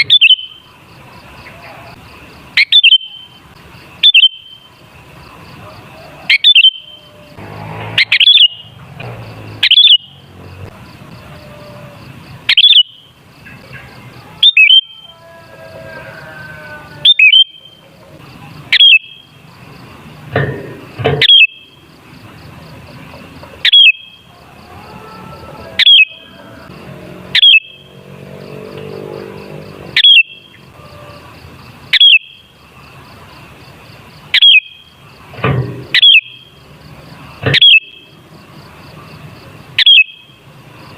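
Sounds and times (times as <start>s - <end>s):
bird calling sharp notes: 0.0s - 0.7s, 2.5s - 3.4s, 4.0s - 4.7s, 6.3s - 7.2s, 7.9s - 10.2s, 11.4s - 13.1s, 14.4s - 15.2s, 16.9s - 17.8s, 18.7s - 19.3s, 21.2s - 21.8s, 23.6s - 24.3s, 25.7s - 26.4s, 27.3s - 28.0s, 29.9s - 31.2s, 31.9s - 32.5s, 34.3s - 34.9s, 35.9s - 36.6s, 37.5s - 38.1s, 39.8s - 40.3s.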